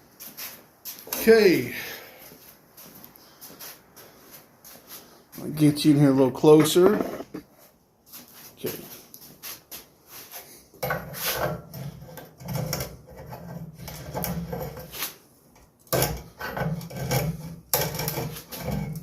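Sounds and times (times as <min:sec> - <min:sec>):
rusty pipe joint grating and creaking: 0:06.5 - 0:07.4, 0:10.8 - 0:14.9, 0:15.9 - 0:19.0.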